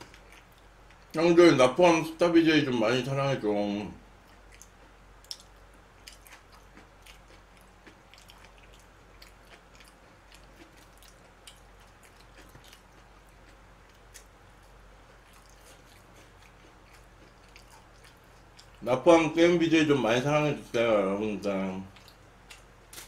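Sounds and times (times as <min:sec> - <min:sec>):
faint chewing of food: 0:00.0 - 0:01.2, 0:04.1 - 0:18.8, 0:21.8 - 0:23.0.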